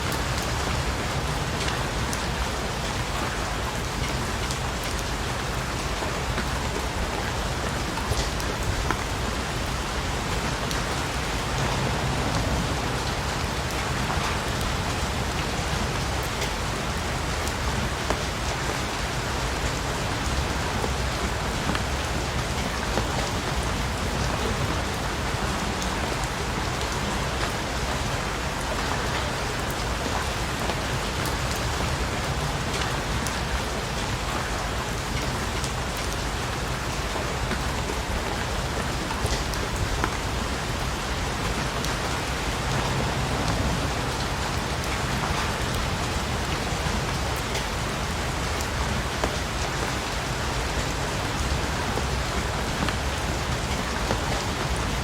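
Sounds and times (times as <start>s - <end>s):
steady rain falling: 0.0s - 55.0s
raindrop ticks: 3.1s - 40.5s.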